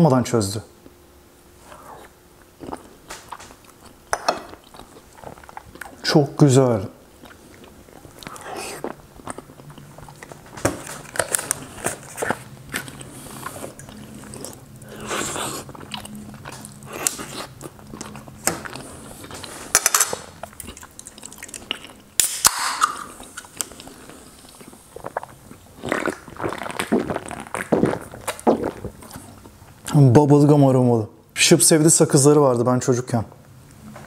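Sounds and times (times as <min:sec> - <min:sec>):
chewing with wet mouth noises: 0:01.7 - 0:06.4, 0:07.1 - 0:19.7, 0:20.3 - 0:22.1, 0:23.0 - 0:30.0
sharp crack: 0:22.2 - 0:23.1.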